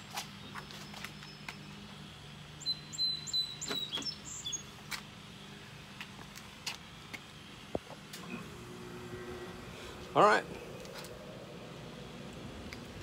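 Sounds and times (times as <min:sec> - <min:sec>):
bird chirping: 0:02.6 - 0:04.8.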